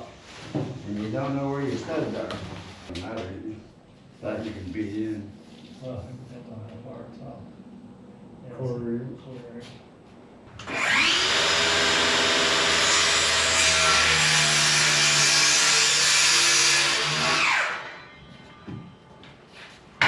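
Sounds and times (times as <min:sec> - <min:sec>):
electric power saw running: 0:10.5 - 0:18.0.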